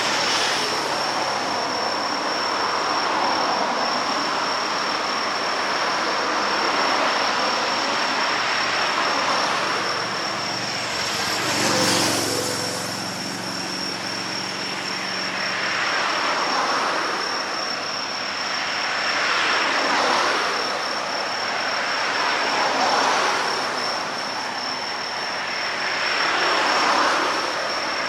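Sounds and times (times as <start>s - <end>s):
vehicles passing by: 0.0s - 28.0s
engine hum: 8.0s - 16.8s
high-pitched whine: 8.7s - 16.4s.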